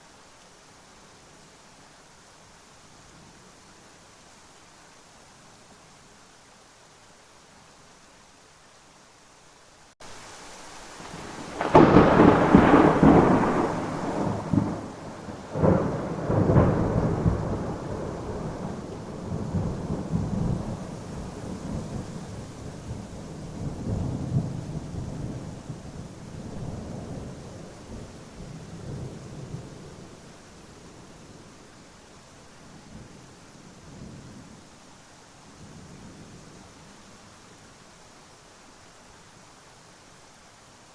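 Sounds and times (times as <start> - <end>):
steady rain: 0.0 - 40.9
thunder cracking and rumbling: 11.1 - 29.8.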